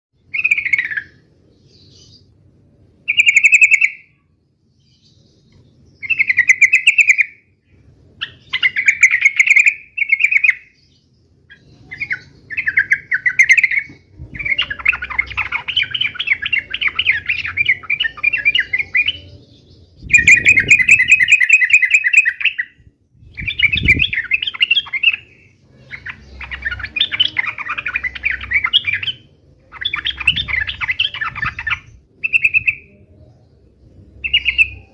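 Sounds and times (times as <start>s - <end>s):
bird rapid chattering song: 0.2s - 2.4s, 3.1s - 4.2s, 5.4s - 7.5s, 8.1s - 34.9s.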